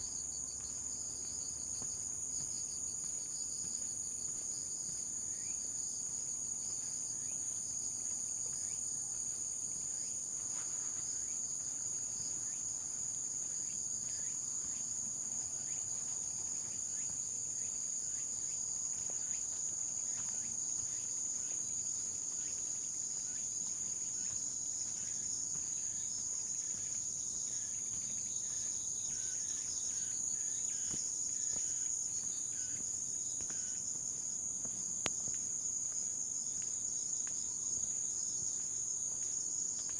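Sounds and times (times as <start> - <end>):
shrill insect chorus: 15.6 - 39.0.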